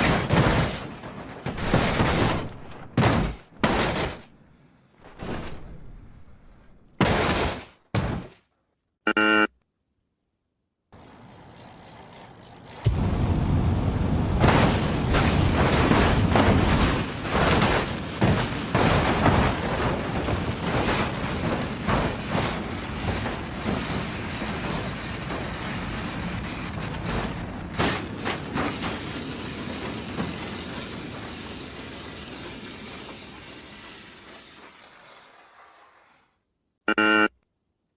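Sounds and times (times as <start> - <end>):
loud mechanical rumble with knocks: 11.1 - 35.0.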